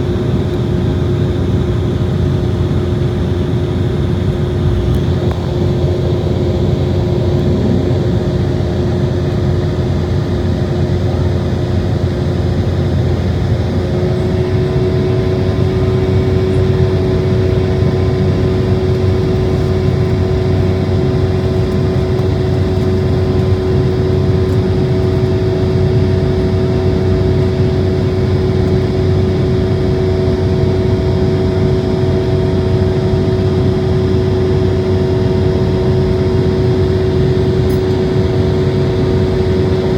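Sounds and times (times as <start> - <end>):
jet engine whining tones: 0.0 - 10.7
jet engines rumbling: 0.0 - 39.9.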